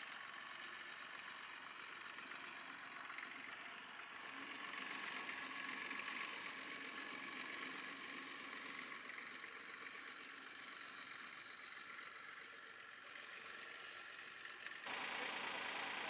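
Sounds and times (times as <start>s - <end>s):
tractor engine running: 13.2s - 16.0s.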